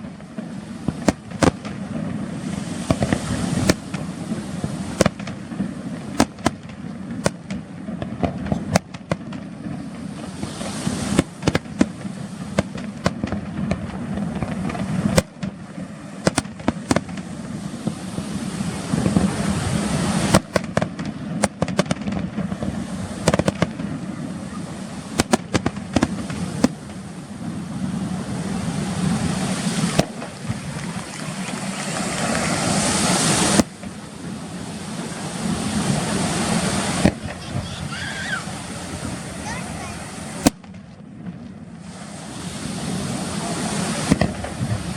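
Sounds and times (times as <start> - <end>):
fireworks shells bursting: 0.0 - 24.0, 24.8 - 27.4, 28.2 - 34.4
hissing crackle of fireworks: 0.0 - 44.9.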